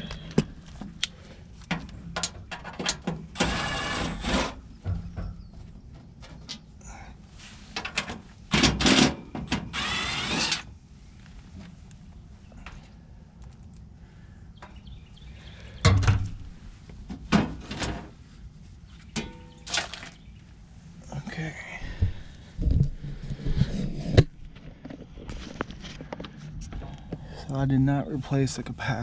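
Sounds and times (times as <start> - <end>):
power driver motor whirring: 3.4 - 4.5, 9.7 - 10.7.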